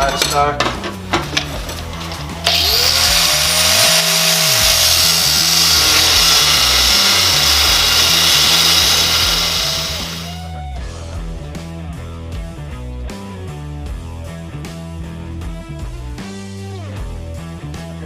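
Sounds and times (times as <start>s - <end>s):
power tool cutting steel: 2.4s - 10.5s.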